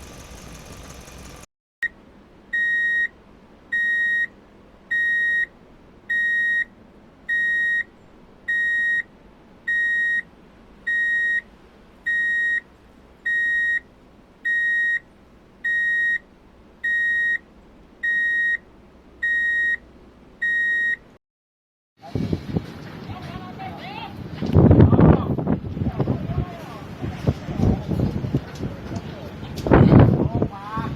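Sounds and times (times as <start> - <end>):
reversing alarm beeps: 2.6 - 3.1, 3.7 - 4.3, 4.9 - 5.5, 6.1 - 6.7, 7.3 - 7.9, 8.5 - 9.1, 9.7 - 10.3, 10.9 - 11.4, 12.1 - 12.6, 13.3 - 13.8, 14.5 - 15.0, 15.6 - 16.2, 16.8 - 17.4, 18.0 - 18.6, 19.2 - 19.8, 20.4 - 21.0.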